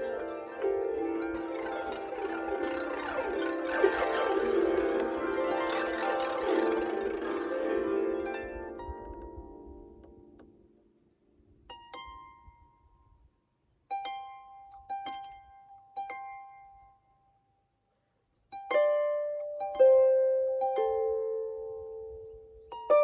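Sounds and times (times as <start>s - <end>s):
harp plucked notes: 0.0s - 10.7s.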